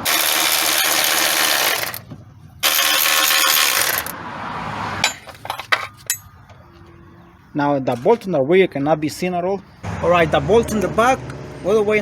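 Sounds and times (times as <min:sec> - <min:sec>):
metallic clinks of tools: 0:05.0 - 0:06.3.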